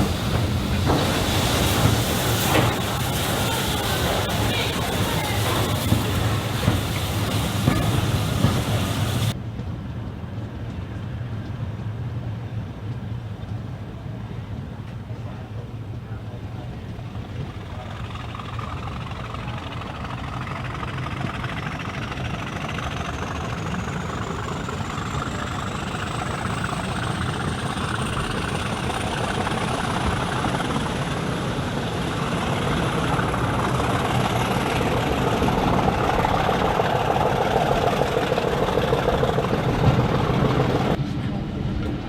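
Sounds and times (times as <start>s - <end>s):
high turbocharger whine: 0.0s - 9.4s, 17.8s - 42.0s
diesel locomotive engine running: 0.0s - 42.0s.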